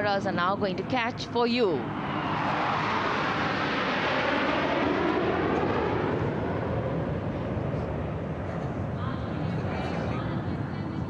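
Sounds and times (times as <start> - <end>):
jet aircraft passing overhead: 0.0 - 11.0.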